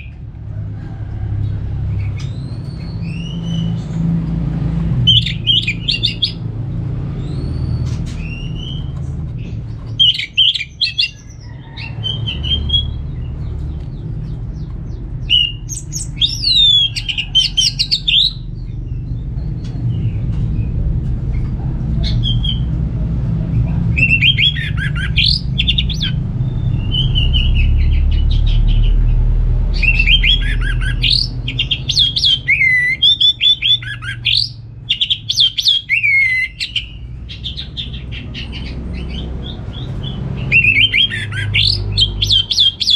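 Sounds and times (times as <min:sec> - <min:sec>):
steady low hum: 0:00.0 - 0:32.5.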